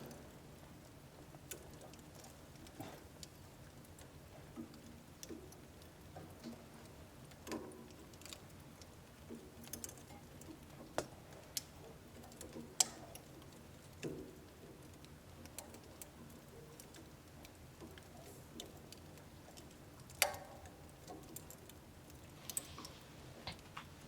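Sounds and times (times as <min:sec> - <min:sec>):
wood fire crackling and popping: 0:00.0 - 0:24.0
low hiss of flames: 0:22.3 - 0:24.0.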